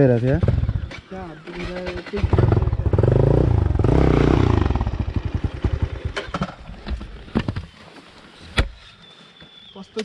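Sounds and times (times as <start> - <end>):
dirt bike engine revving: 0.4 - 6.5.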